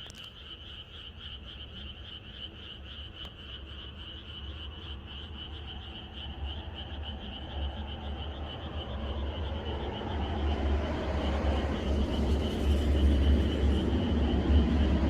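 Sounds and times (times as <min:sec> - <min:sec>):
chorus of frogs trilling: 0:00.0 - 0:15.0
low rumbling noise: 0:06.3 - 0:15.0.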